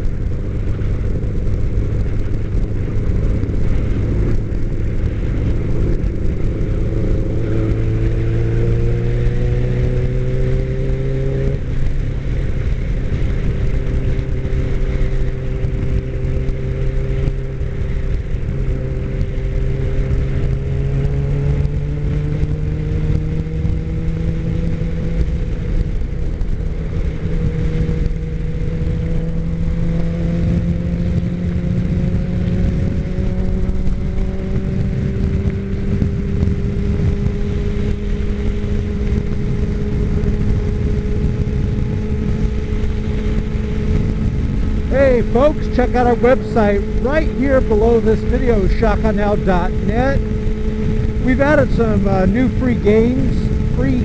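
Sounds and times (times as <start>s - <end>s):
motorcycle engine running: 0.0s - 54.0s
road and wind noise: 0.0s - 54.0s.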